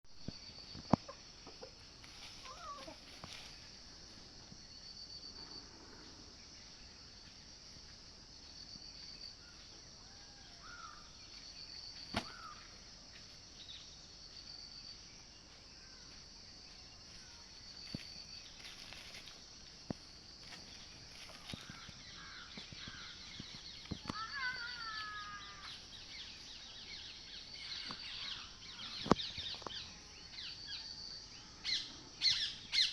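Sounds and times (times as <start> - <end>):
bird calls: 0.3 - 3.6, 10.2 - 12.8, 21.1 - 32.9.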